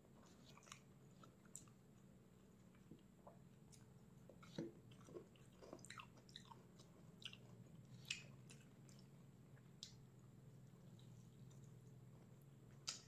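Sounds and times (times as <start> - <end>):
person chewing food: 0.0 - 10.2
faint low hum: 0.0 - 13.0.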